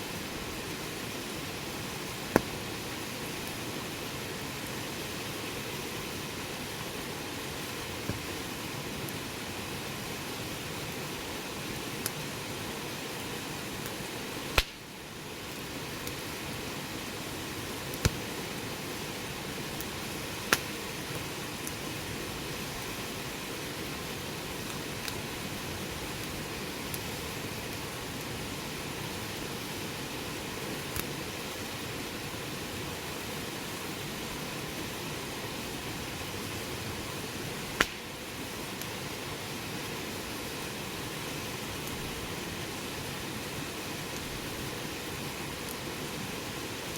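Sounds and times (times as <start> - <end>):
wood fire crackling: 0.0 - 46.9
burning wood popping: 2.0 - 2.7, 7.6 - 9.2, 13.8 - 14.9, 17.7 - 18.6, 19.6 - 21.9, 37.6 - 38.2
sharp fire pops: 2.3 - 2.6, 14.5 - 14.9, 17.9 - 18.2, 19.8 - 20.7, 37.7 - 38.2
burning wood cracking: 13.8 - 14.9, 17.7 - 18.6, 19.6 - 21.9, 37.6 - 38.2.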